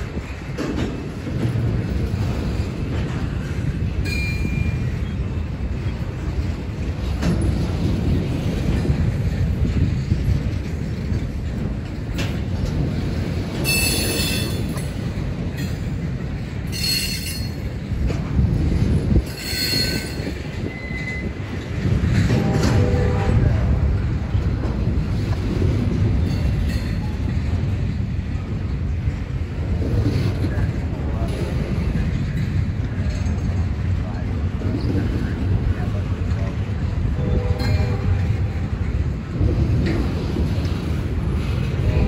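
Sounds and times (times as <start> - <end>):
train wheels rumbling on rail: 0.0 - 42.0
high wheel squeal: 19.3 - 21.4.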